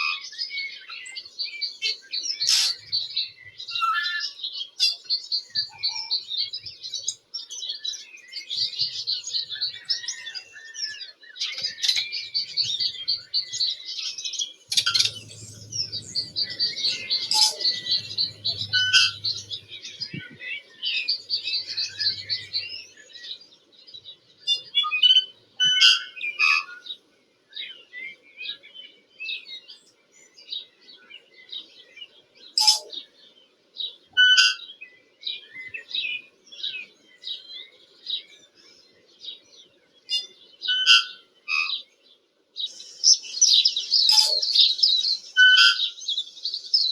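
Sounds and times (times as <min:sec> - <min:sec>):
bird warbling trills and chirps: 0:00.3 - 0:23.4, 0:32.6 - 0:33.0, 0:42.7 - 0:46.9.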